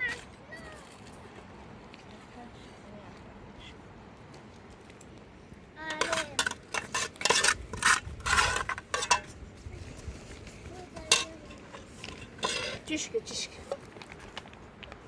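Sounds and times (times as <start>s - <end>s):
dishes and utensils clattering: 5.9s - 9.4s, 11.0s - 13.0s.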